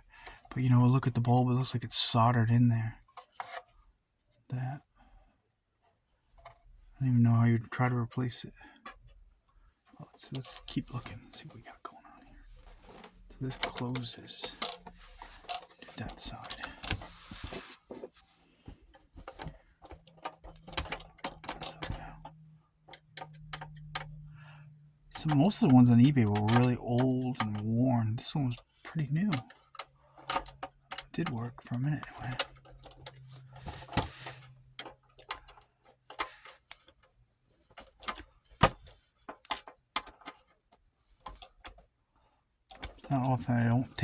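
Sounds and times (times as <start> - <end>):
plastic and metal parts clicking: 12.4 - 24.4, 25.1 - 44.0.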